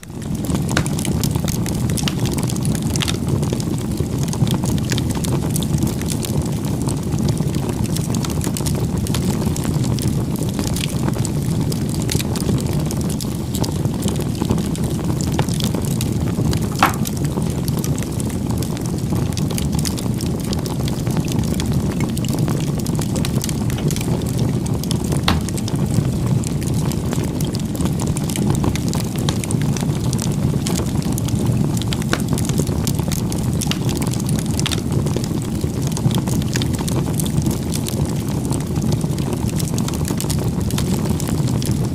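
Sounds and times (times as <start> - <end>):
fire crackles and pops: 0.0 - 41.9
flames rumbling: 0.0 - 41.9.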